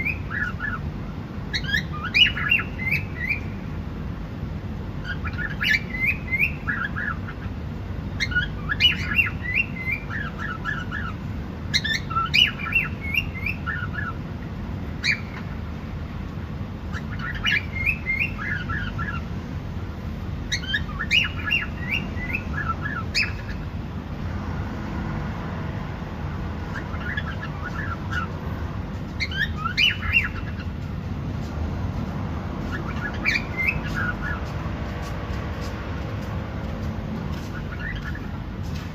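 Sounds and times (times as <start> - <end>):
cockatiel chirping and whistling: 1.5 - 3.5, 5.0 - 7.4, 8.2 - 11.1, 11.7 - 14.2, 15.0 - 15.4, 16.9 - 19.2, 20.5 - 23.6, 26.7 - 28.4, 29.2 - 30.7, 32.7 - 34.4, 37.5 - 38.3.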